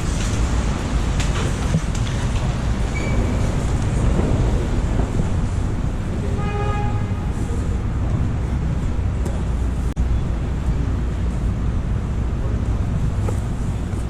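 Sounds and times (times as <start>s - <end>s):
vehicle low rumble: 0.0s - 14.0s
horn-like tone: 6.3s - 7.4s.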